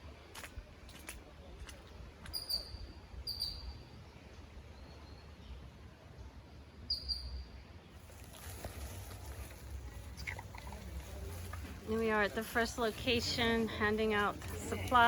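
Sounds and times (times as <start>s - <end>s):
bird chirping: 2.3s - 5.7s, 6.9s - 7.6s.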